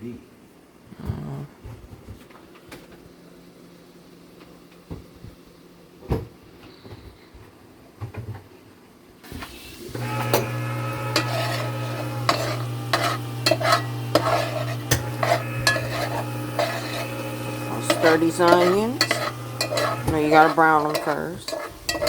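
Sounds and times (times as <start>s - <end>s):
onions sizzling in a pot: 9.3s - 22.0s
spoon scraping a pot: 10.0s - 22.0s
steady low hum: 10.3s - 22.0s.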